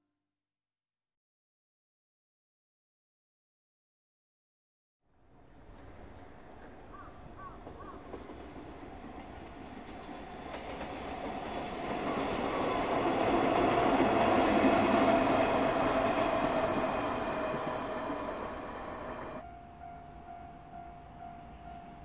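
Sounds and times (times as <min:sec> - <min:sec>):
train wheels rumbling on rails: 0:05.6 - 0:19.4.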